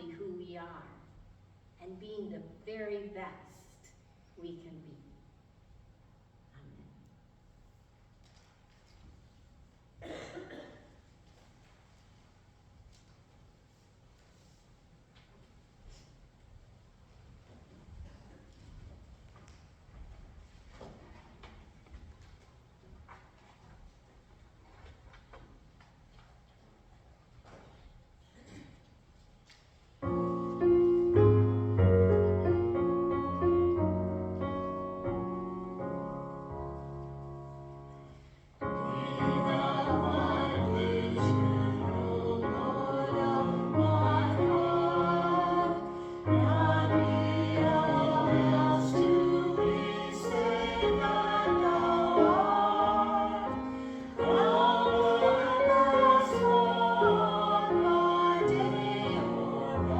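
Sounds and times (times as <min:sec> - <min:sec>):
piano playing: 0:30.0 - 0:59.9
voices singing: 0:38.7 - 0:59.9.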